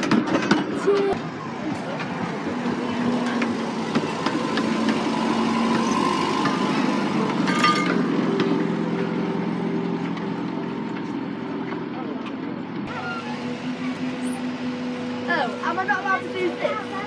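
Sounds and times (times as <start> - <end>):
miniature train engine drone: 0.0 - 17.0
shrill squeal: 12.9 - 14.4.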